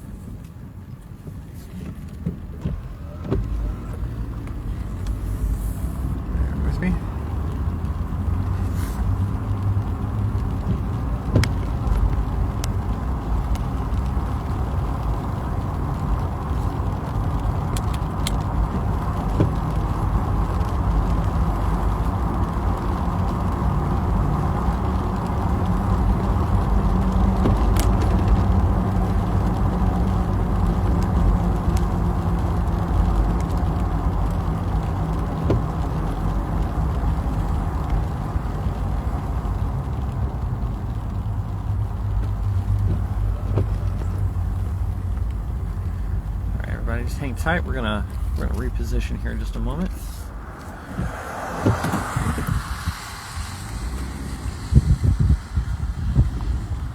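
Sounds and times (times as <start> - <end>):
car engine hum: 0.0 - 56.9
faint clicks: 7.4 - 46.8.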